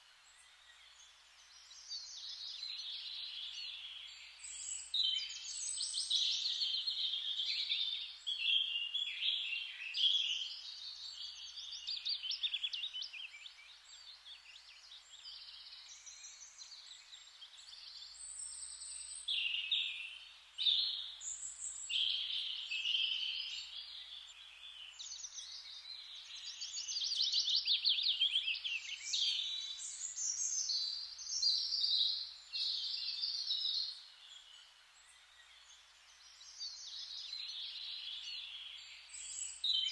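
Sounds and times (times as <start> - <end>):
faint steady hiss: 0.0 - 39.9
songbirds chirping and trilling: 0.0 - 39.9.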